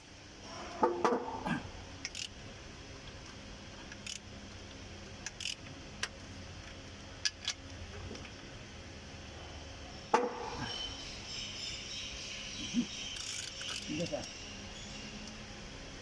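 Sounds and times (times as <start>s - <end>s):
low steady hum: 0.0s - 16.0s
metallic clicks of hand tools: 2.0s - 2.3s, 13.2s - 14.4s.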